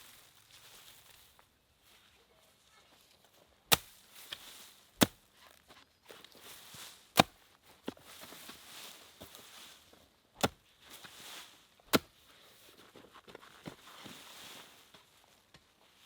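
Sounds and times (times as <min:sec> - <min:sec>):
soft rustling: 0:02.8 - 0:10.1.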